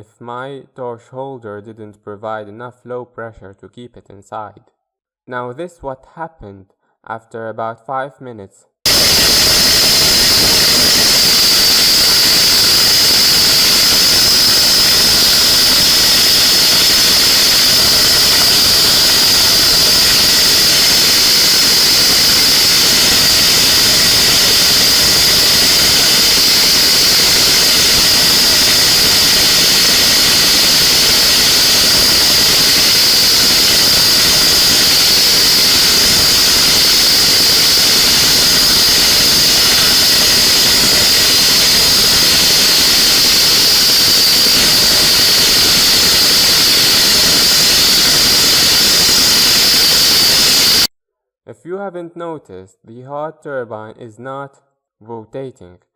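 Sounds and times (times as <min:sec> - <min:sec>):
high steady whistle: 0:08.9 - 0:50.9
jet engine air rushing hiss: 0:08.9 - 0:50.9.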